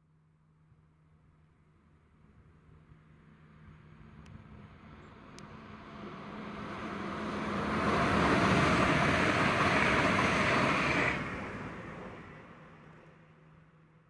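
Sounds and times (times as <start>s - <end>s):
train passing at speed: 3.2s - 14.0s.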